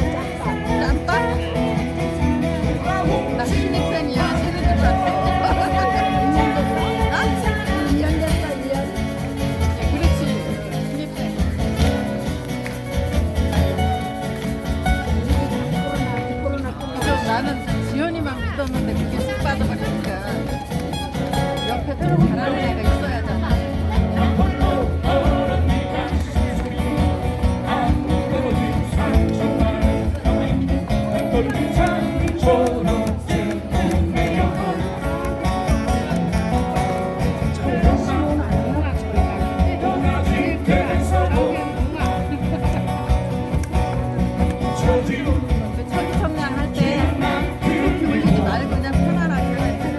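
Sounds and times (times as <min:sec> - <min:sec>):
person singing: 0:00.0 - 0:09.0, 0:22.1 - 0:42.7, 0:44.5 - 0:49.9
bass: 0:00.0 - 0:49.9
guitar ensemble playing: 0:00.0 - 0:49.9.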